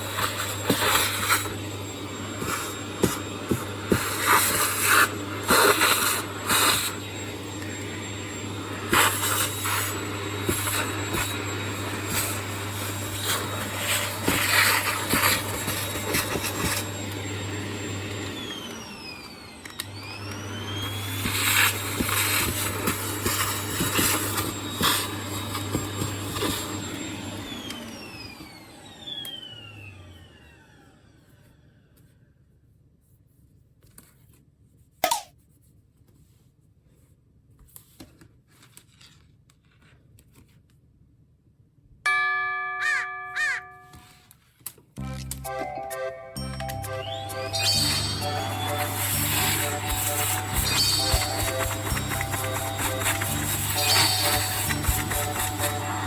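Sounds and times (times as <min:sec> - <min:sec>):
vacuum cleaner running: 0:00.0 - 0:32.0, 0:45.0 - 0:56.0.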